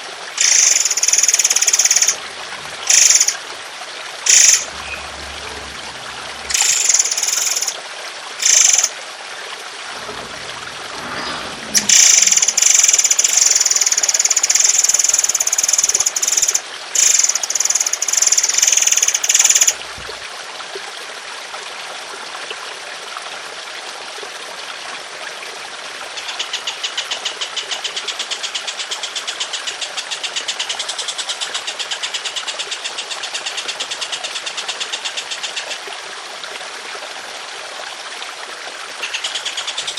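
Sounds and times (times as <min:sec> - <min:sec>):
trickling water: 0:00.0 - 0:39.9
pulsed rattling bird trill: 0:00.4 - 0:03.4, 0:04.3 - 0:07.8, 0:08.4 - 0:08.9, 0:10.4 - 0:19.8.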